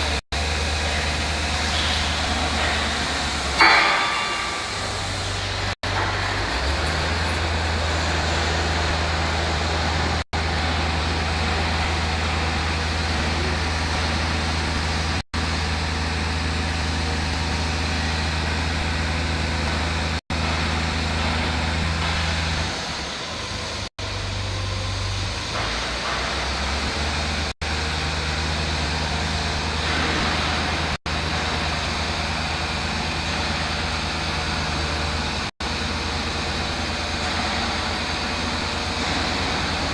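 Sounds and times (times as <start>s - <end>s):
truck diesel engine humming: 0.0s - 39.9s.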